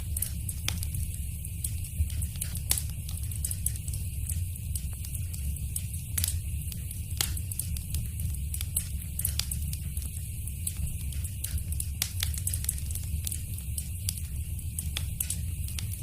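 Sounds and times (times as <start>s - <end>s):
wood fire crackling in fireplace: 0.0s - 16.0s.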